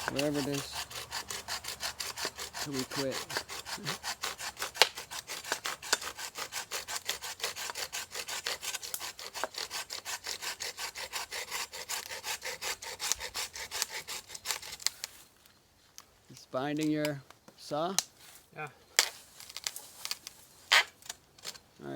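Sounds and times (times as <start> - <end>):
hand saw cutting wood: 0.0 - 15.1, 19.5 - 21.6.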